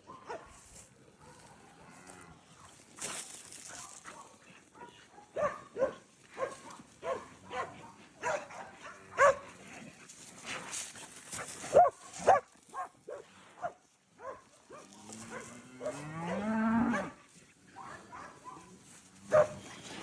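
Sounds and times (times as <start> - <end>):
dog barking: 0.1 - 0.5, 3.7 - 9.5, 11.7 - 17.2, 17.8 - 19.7.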